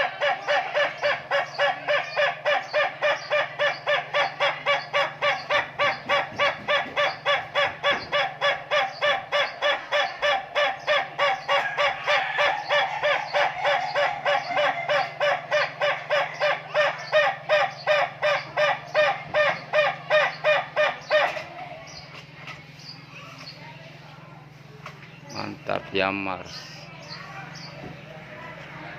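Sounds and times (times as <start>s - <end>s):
rooster crowing: 6.7s - 17.4s.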